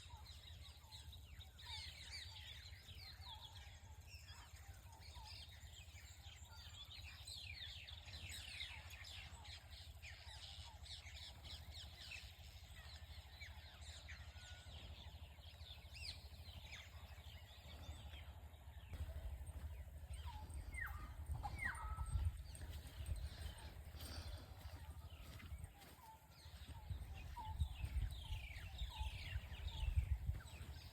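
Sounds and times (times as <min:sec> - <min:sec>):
small birds chirping: 0:00.0 - 0:30.9
low rumble: 0:15.0 - 0:30.9.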